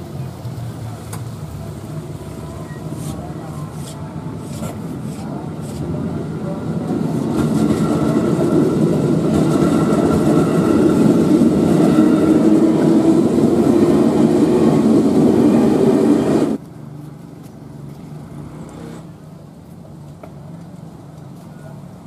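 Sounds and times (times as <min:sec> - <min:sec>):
electric train passing: 0:01.4 - 0:16.6.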